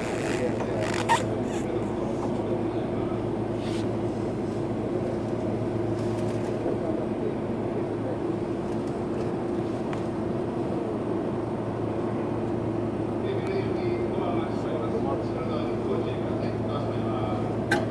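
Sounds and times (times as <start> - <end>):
train electrical hum: 0.0 - 17.9.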